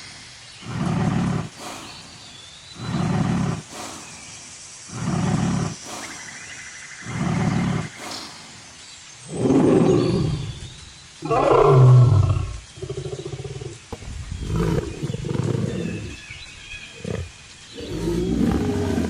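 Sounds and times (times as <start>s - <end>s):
lion roaring: 0.6s - 1.9s, 2.8s - 4.0s, 4.9s - 6.2s, 7.0s - 8.3s, 9.3s - 19.0s.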